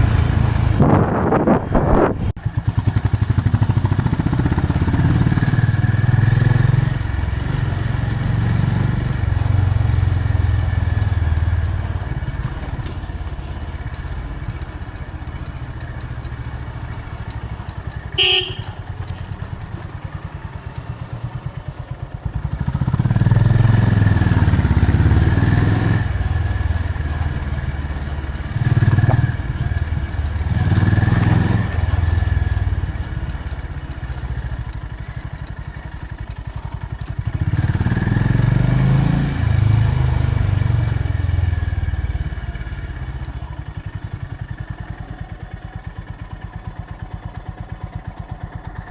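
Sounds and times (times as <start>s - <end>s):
motorcycle engine revving: 0.0s - 48.9s
horn beep: 18.1s - 18.8s.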